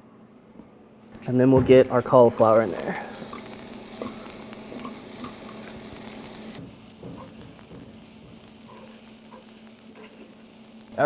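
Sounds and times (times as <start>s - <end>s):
cauliflower sizzling in oil: 2.2s - 11.0s.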